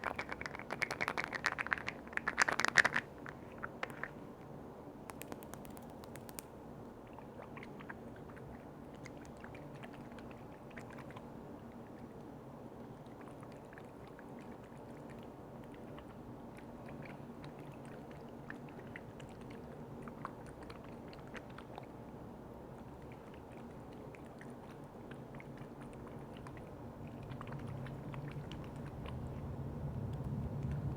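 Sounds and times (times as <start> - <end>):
small clicks and taps: 5.1 - 6.5
wet squishy liquid sounds: 5.1 - 30.9.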